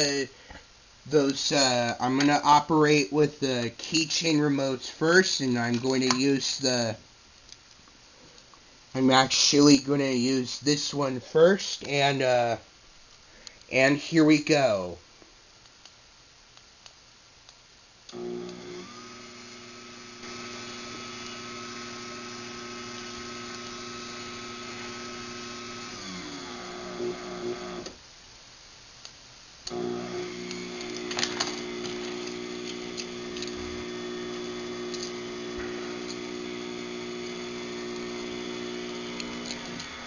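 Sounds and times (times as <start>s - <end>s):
garage door opener motor whining: 18.1s - 28.0s, 29.7s - 40.0s
clicks: 30.4s - 40.0s.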